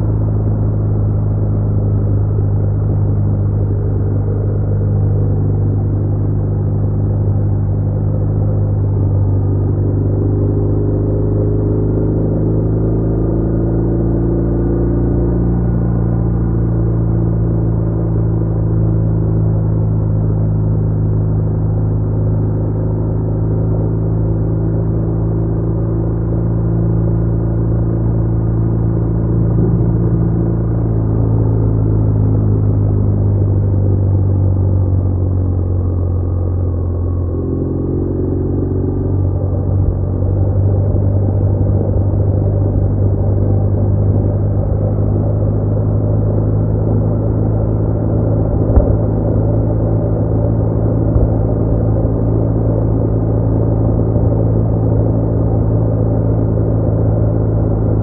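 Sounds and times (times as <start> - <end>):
motorcycle engine cruising: 27.0 - 58.0.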